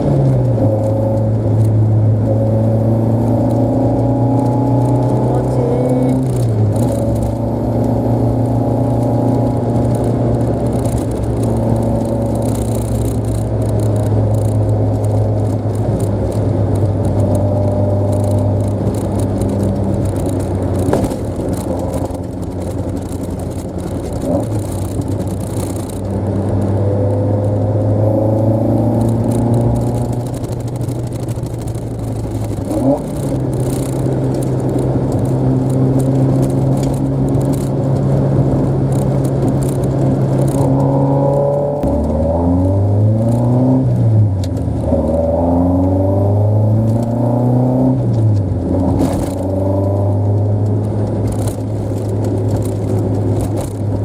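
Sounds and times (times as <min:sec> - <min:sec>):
car engine running: 0:00.0 - 0:54.0.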